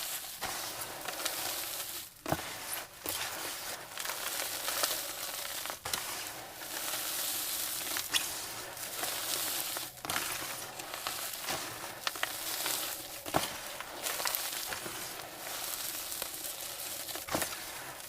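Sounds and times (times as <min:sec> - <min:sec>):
chalk crushing with gritty crackle: 0:00.0 - 0:18.0.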